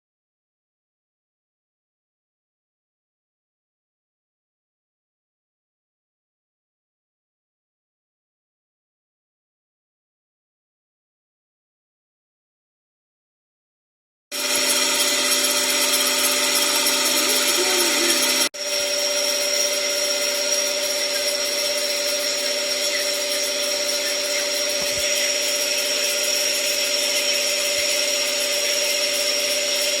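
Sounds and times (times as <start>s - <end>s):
rasping dry bearings: 14.3s - 30.0s
electric motor whine: 14.4s - 30.0s.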